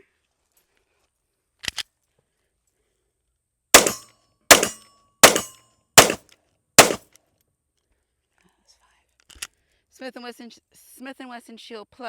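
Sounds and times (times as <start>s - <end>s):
pistol shots with ringing tail: 3.8s - 6.2s, 6.8s - 7.0s.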